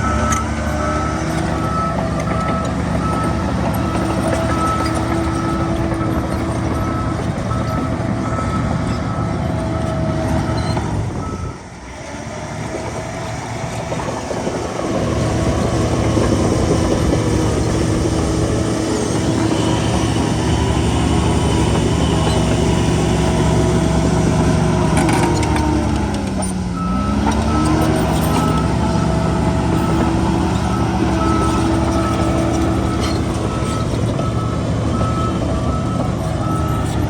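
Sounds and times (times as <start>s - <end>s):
reversing alarm beeping: 0.0s - 11.6s, 26.8s - 37.0s
heavy diesel machinery running: 0.0s - 37.0s.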